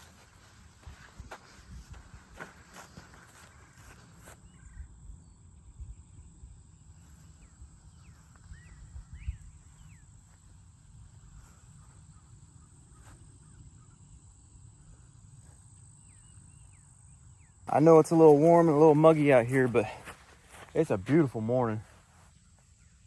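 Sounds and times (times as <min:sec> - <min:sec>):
footsteps on trail: 0:00.0 - 0:04.6, 0:17.7 - 0:22.8
birds chirping: 0:00.0 - 0:23.0.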